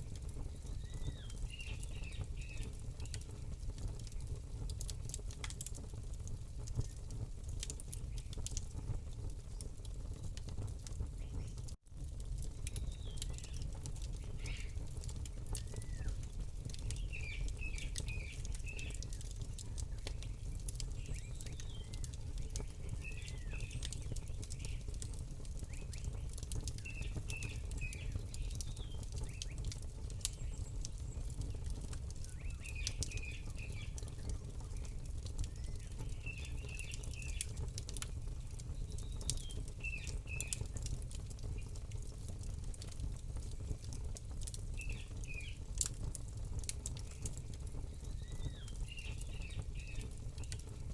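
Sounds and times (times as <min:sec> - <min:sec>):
campfire crackling and popping: 0:00.0 - 0:50.9
small bird chirping: 0:00.4 - 0:03.4, 0:12.7 - 0:14.8, 0:21.0 - 0:25.0, 0:25.6 - 0:37.6, 0:47.9 - 0:50.1.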